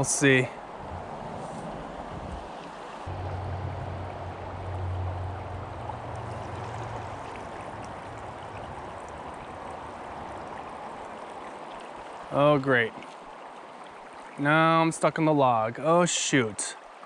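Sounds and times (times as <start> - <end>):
creek rushing over rocks: 0.0 - 17.0
low rumble: 0.8 - 9.7.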